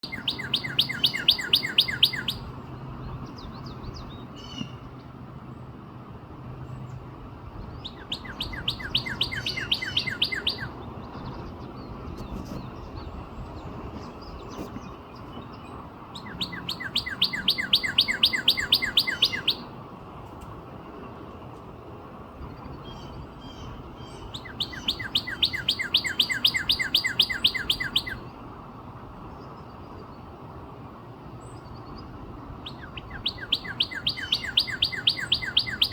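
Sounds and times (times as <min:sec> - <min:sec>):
bird singing whistled notes: 0:00.0 - 0:02.6, 0:07.8 - 0:11.4, 0:15.2 - 0:19.7, 0:22.8 - 0:28.3, 0:32.6 - 0:35.9.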